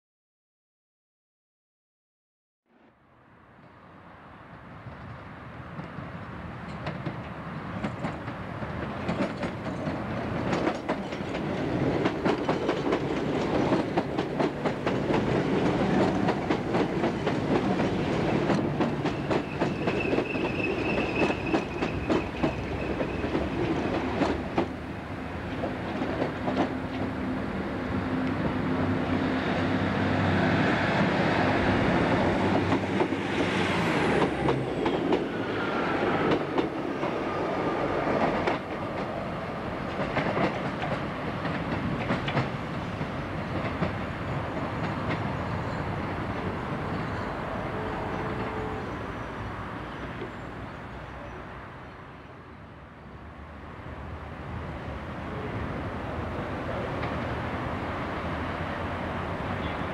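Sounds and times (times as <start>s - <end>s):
train rumble: 4.5s - 59.9s
wheels clicking over rail joints: 6.7s - 24.8s, 39.8s - 45.4s
high-pitched wheel squeal: 19.2s - 23.3s.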